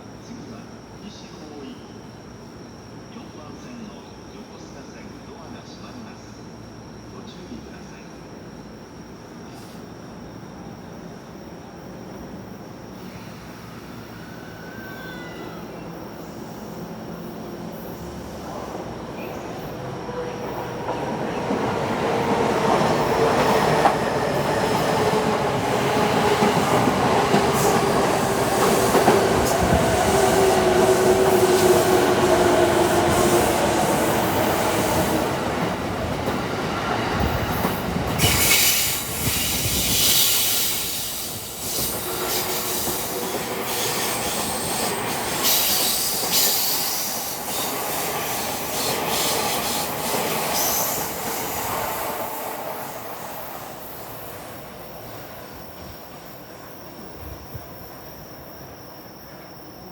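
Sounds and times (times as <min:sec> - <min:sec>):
loud hissing rush: 0:37.1 - 0:54.6.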